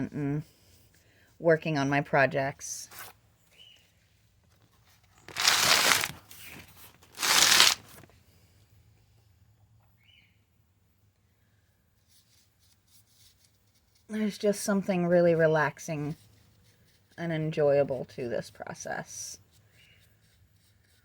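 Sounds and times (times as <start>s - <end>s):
loud rustling: 5.2s - 8.1s.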